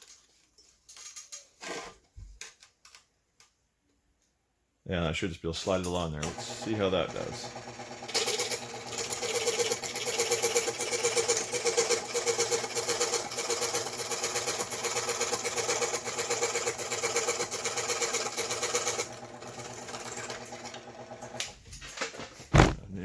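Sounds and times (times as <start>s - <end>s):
scroll saw cutting circuit board: 6.2s - 21.4s.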